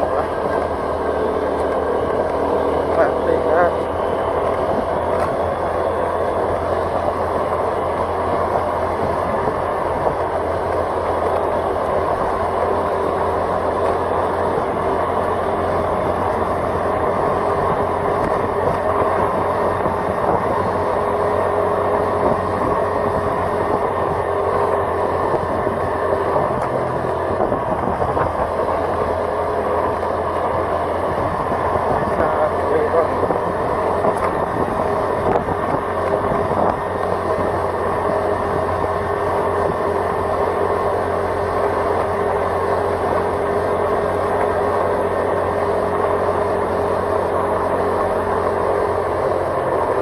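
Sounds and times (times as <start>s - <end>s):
road and wind noise: 0.0s - 50.0s
vehicle engine hum: 0.0s - 50.0s.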